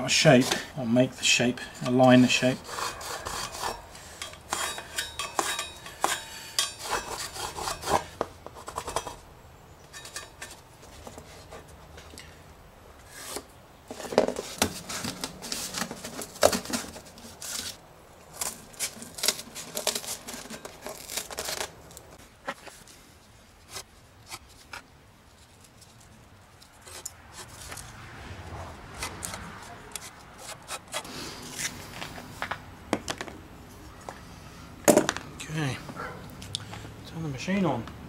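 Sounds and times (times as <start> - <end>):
cardboard rustling and scraping: 13.0 - 28.0.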